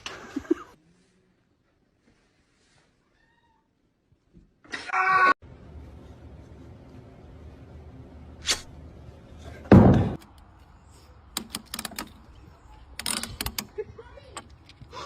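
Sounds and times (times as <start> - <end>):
loud thump: 9.6 - 10.2.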